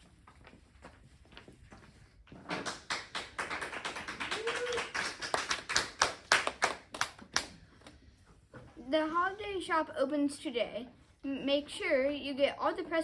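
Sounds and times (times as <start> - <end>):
people clapping: 2.4 - 7.9.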